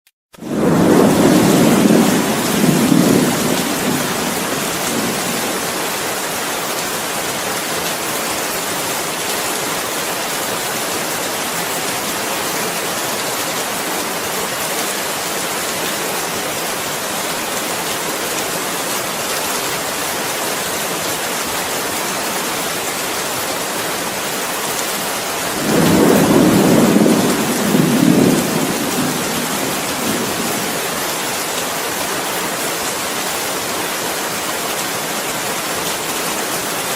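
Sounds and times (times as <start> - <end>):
heavy rain: 0.3 - 36.9
thunder rumbling: 0.4 - 5.9, 25.4 - 31.5.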